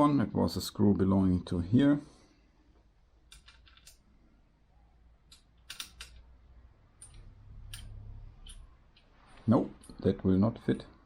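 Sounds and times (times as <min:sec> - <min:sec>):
faint low hum: 0:00.0 - 0:11.0
metallic clicks and taps of screw: 0:03.3 - 0:04.0, 0:05.3 - 0:06.3, 0:07.0 - 0:09.1.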